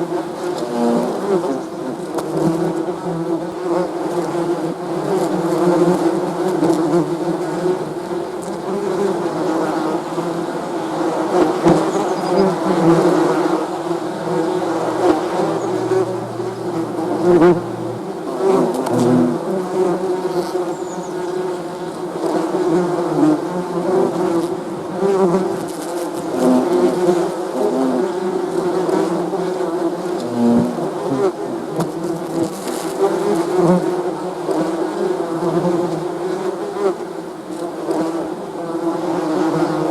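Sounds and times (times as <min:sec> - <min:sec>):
bees buzzing: 0:05.2 - 0:22.3.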